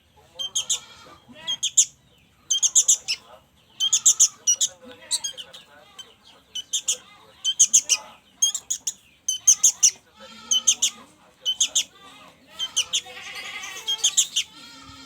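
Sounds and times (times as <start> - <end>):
young birds begging calls: 0.4 - 15.0.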